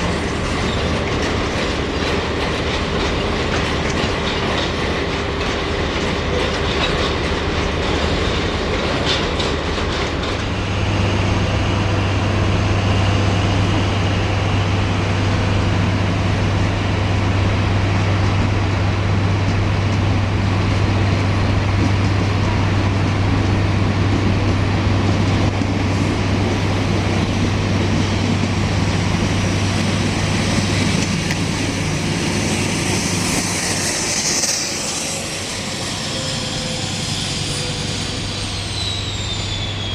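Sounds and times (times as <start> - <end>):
train wheels clicking on rails: 0.0 - 39.9
steady low drone: 10.2 - 39.9.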